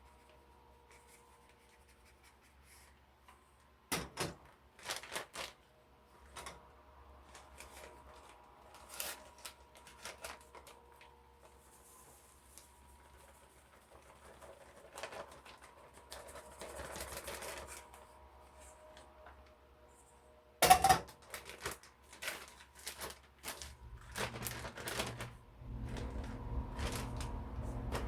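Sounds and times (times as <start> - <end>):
rustling: 21.2 - 28.0
steady low hum: 23.8 - 28.0.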